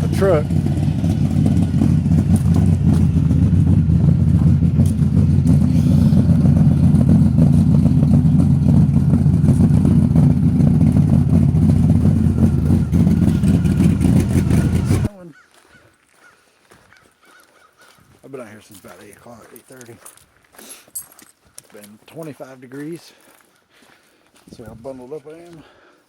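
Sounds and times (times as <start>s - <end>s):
truck engine rumbling: 0.0s - 15.2s.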